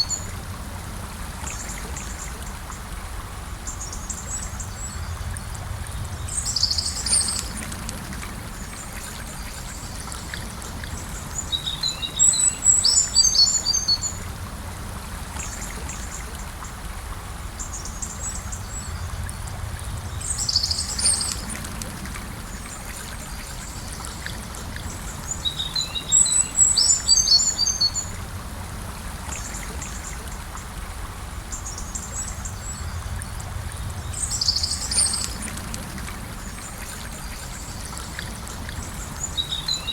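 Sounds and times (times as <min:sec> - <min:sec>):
river flowing: 0:00.0 - 0:39.9
songbird chirping: 0:19.8 - 0:21.6, 0:23.4 - 0:28.2.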